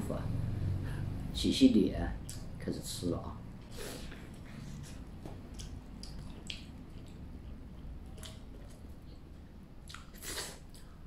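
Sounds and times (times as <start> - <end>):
person chewing: 3.7 - 11.0
wet mouth clicks and smacks: 5.5 - 8.9, 9.8 - 11.0.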